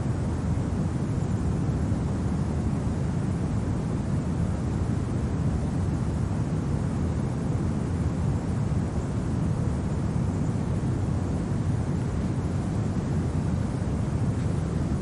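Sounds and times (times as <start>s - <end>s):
low rumbling wind: 0.0s - 15.0s.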